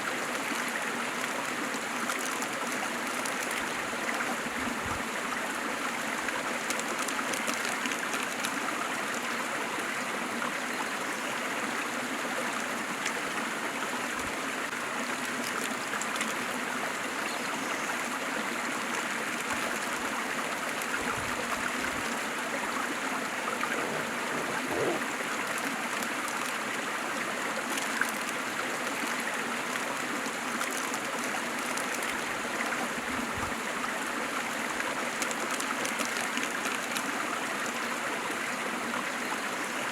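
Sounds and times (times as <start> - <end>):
waterfall rushing: 23.0 - 25.5.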